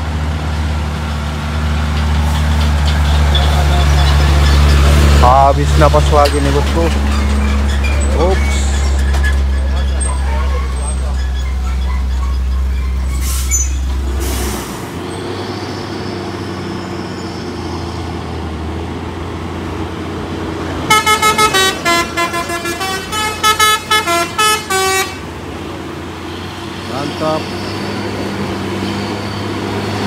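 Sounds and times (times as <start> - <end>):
heavy truck engine droning: 0.0 - 30.0
multi-tone horn blasts: 20.9 - 25.3.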